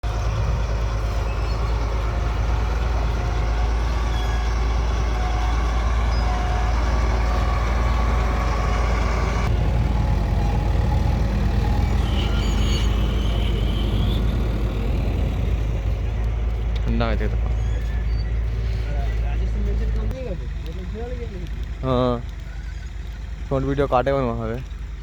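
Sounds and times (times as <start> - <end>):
train rumbling: 0.0 - 25.0
faint high squeal: 3.7 - 9.5, 11.7 - 14.8, 17.5 - 19.5.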